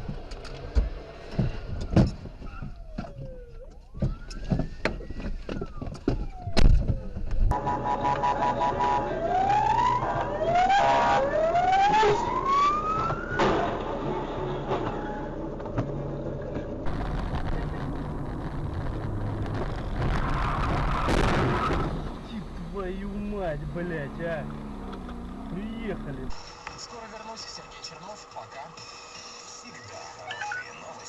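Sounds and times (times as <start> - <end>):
vehicle engine and road noise: 0.0 - 30.2
police siren wailing: 2.4 - 14.2.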